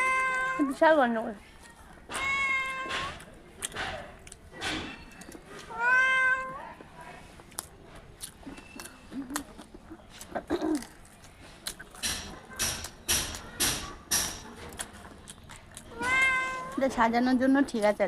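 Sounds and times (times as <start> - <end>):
cat meowing: 0.0 - 0.8, 2.1 - 3.2, 5.6 - 6.8, 15.9 - 16.8
people eating: 0.0 - 18.0.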